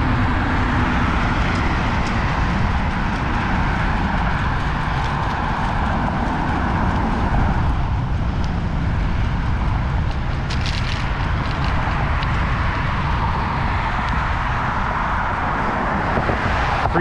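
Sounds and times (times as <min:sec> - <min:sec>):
bicycle tyre noise: 0:00.0 - 0:17.0
wind rumble on microphone: 0:00.0 - 0:17.0.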